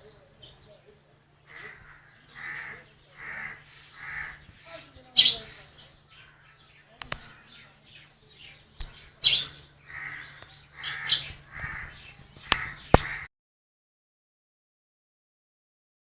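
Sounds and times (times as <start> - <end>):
birds calling: 0.0 - 13.3
sharp clicks: 7.0 - 7.3, 8.8 - 9.1, 12.4 - 13.2.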